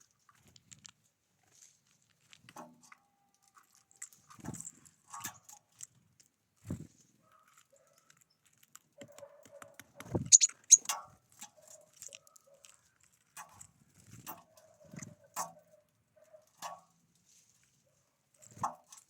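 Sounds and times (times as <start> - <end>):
bird calls and clicks: 7.2 - 13.7
high sharp bird chirps: 10.2 - 10.9.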